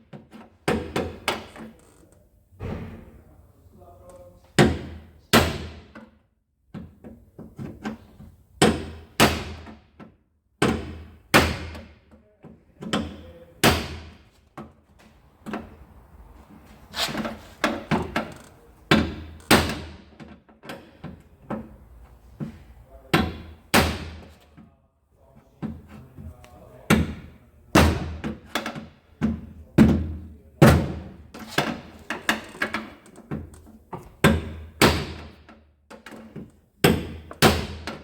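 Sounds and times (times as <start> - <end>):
hammer striking car body metal: 4.6 - 6.0, 8.6 - 9.9, 10.6 - 12.0, 13.0 - 14.3, 18.9 - 20.2, 23.1 - 24.4, 26.9 - 33.0, 34.2 - 35.5, 36.8 - 38.0.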